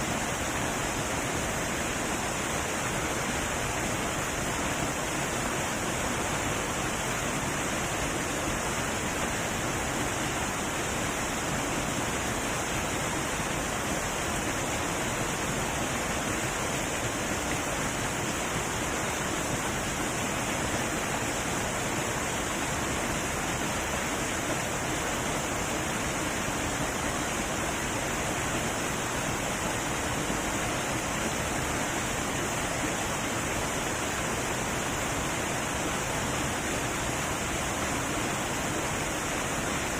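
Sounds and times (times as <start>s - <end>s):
heavy waterfall rushing: 0.0s - 39.9s.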